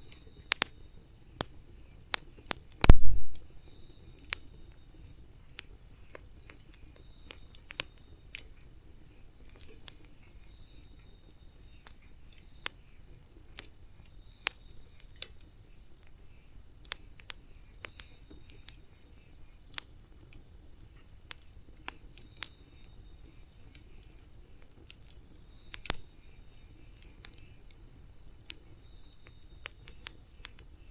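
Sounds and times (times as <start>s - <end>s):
wood snapping and popping in fire: 0.0s - 30.9s
faint low rumble: 2.8s - 4.0s.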